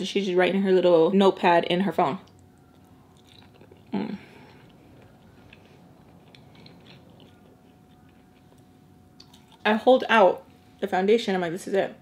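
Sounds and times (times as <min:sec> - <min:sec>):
faint chewing with soft clicks: 0:02.2 - 0:09.7.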